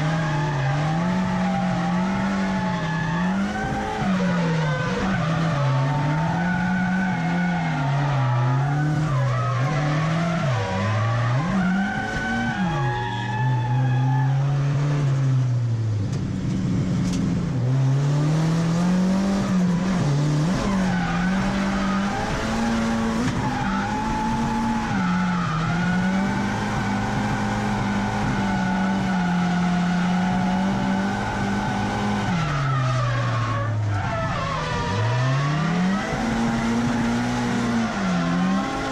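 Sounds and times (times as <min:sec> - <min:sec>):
car engine revving high: 0:00.0 - 0:13.6, 0:17.4 - 0:38.9
tyres skidding: 0:00.0 - 0:38.9.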